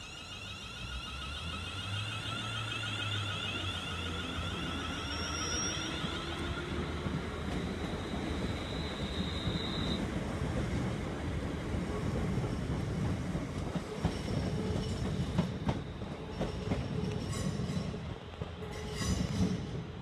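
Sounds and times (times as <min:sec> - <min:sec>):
faint high whine: 0:00.0 - 0:10.1
train rumbling past: 0:00.0 - 0:20.0.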